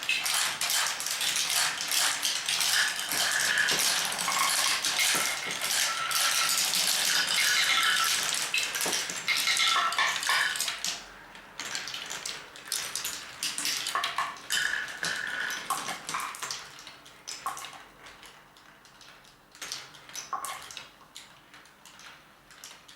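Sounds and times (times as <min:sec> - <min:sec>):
marbles clacking through marble run: 0:00.0 - 0:11.0, 0:12.8 - 0:16.6.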